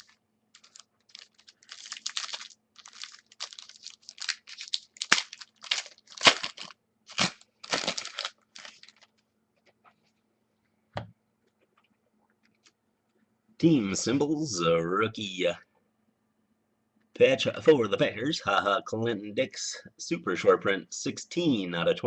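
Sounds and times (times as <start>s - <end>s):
packaging rustling and tearing: 0.0s - 9.2s.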